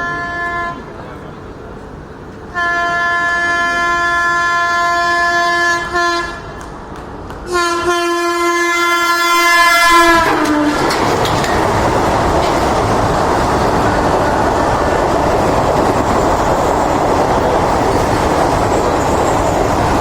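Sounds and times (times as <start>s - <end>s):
train horn blasts: 0.0s - 0.9s, 2.5s - 6.7s, 7.4s - 10.9s
train wheels roaring on rails: 0.0s - 20.0s.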